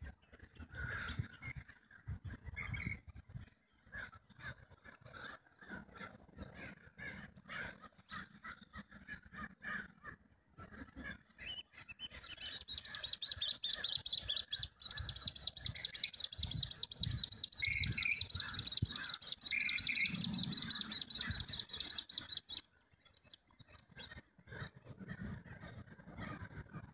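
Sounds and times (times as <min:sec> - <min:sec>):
birds calling: 0:00.0 - 0:26.9
rapid high-pitched bird trill: 0:11.4 - 0:22.6.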